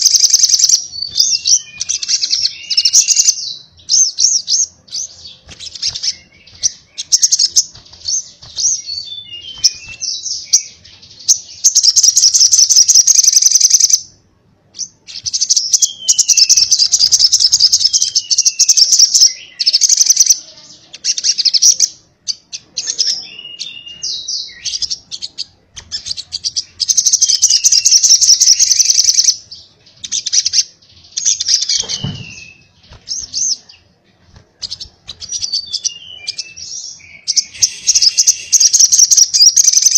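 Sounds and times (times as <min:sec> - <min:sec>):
bird singing rapid trills: 0:00.0 - 0:14.1, 0:14.8 - 0:33.9, 0:34.6 - 0:39.9
bird chirps: 0:00.0 - 0:39.9.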